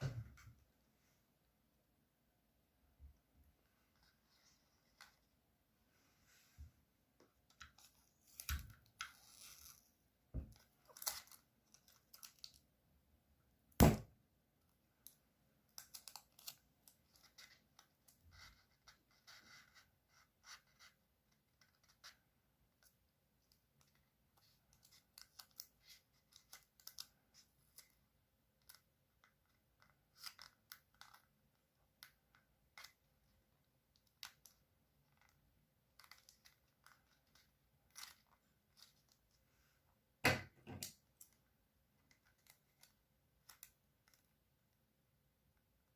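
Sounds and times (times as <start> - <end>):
paper being folded: 23.4 - 28.0, 28.6 - 31.3, 34.0 - 39.4.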